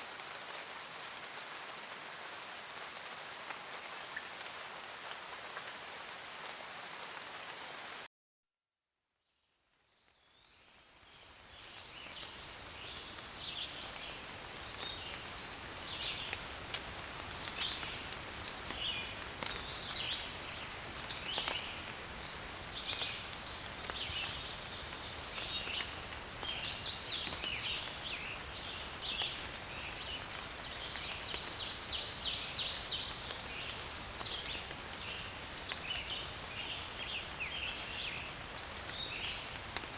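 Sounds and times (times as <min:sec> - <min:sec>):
rain hiss: 0:00.0 - 0:08.1, 0:10.2 - 0:39.9.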